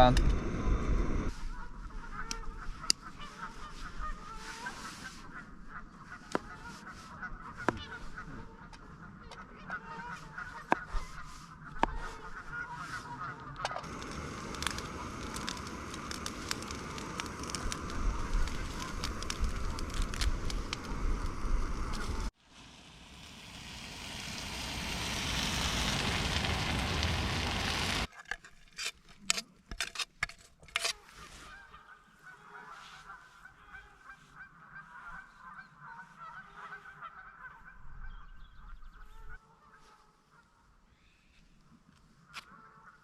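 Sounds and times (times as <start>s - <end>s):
geese honking: 1.4s - 22.3s, 23.7s - 28.1s, 31.0s - 40.7s, 42.2s - 43.0s
steady hiss: 13.8s - 28.1s.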